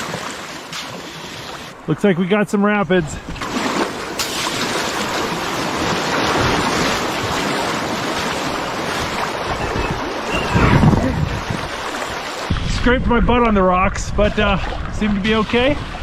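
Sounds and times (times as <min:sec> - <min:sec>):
wind on microphone: 0:05.8 - 0:16.0.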